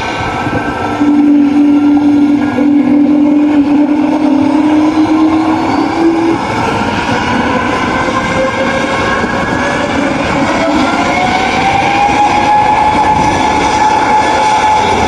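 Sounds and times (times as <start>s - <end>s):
aircraft engines running: 0.0s - 15.0s
whine rising in pitch: 0.6s - 15.0s
steady hum: 0.9s - 6.8s.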